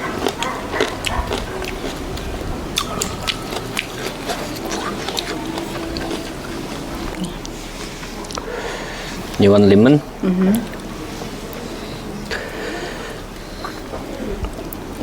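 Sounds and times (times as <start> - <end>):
chewing: 0.0 - 15.0
wind rumbling on microphone: 0.5 - 4.9.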